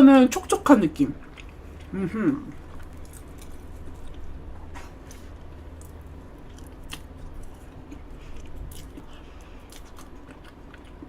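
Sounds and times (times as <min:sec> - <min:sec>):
chewing cake: 0:01.0 - 0:11.0.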